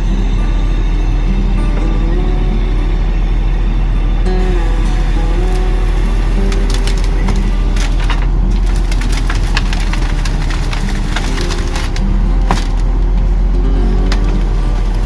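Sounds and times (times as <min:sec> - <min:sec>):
truck engine running: 0:00.0 - 0:15.0
branches cracking and snapping: 0:06.5 - 0:13.2.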